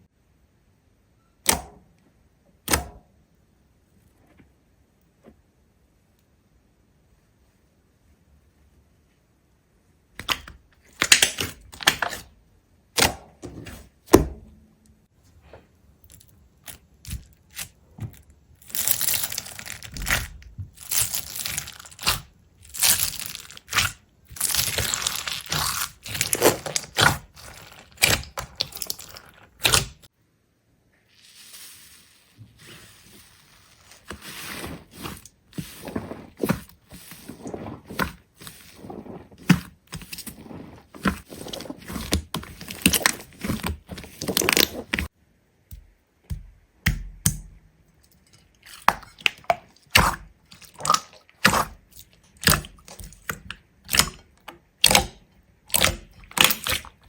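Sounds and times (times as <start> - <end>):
brittle material crunching: 16.0 - 30.1, 31.1 - 45.1.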